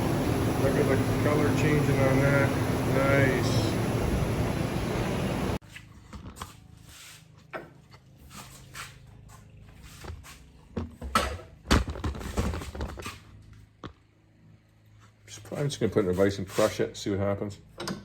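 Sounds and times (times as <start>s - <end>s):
power tool running: 0.0s - 5.6s.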